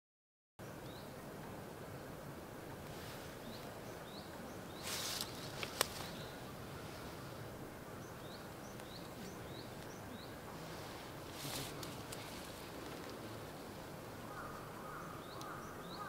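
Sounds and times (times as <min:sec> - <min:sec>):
brief rustle: 0:04.8 - 0:06.2, 0:10.8 - 0:13.2.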